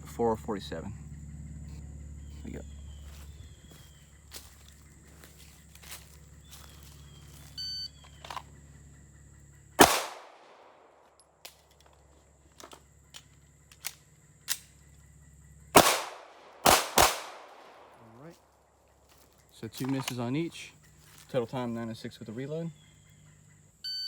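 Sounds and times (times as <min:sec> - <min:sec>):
magazine change clicks: 0:09.8 - 0:10.5, 0:13.2 - 0:14.7, 0:15.8 - 0:17.9
handgun shots: 0:09.8 - 0:10.7, 0:15.8 - 0:17.9.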